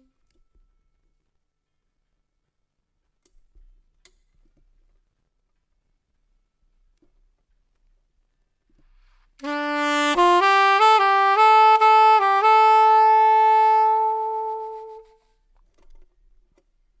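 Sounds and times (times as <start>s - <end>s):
solo wind instrument melody: 9.4s - 15.3s.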